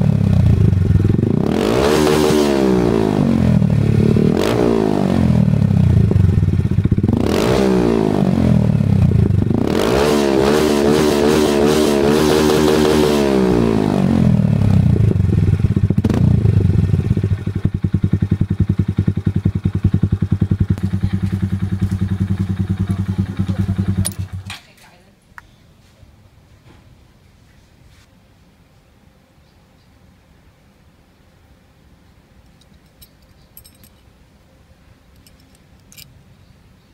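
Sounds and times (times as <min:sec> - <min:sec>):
motorcycle engine revving and idling: 0:00.0 - 0:24.5.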